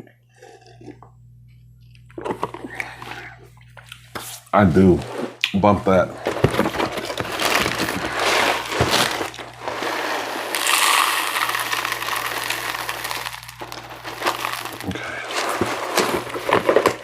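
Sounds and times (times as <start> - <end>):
cereal pouring into a bowl: 6.6 - 17.0
milk pouring and splashing: 7.9 - 17.0.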